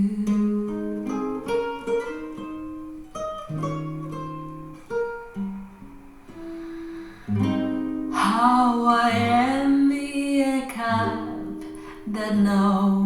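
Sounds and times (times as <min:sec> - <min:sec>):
person singing ballad: 0:00.0 - 0:01.6, 0:06.5 - 0:13.0
plucked guitar notes: 0:00.0 - 0:09.5.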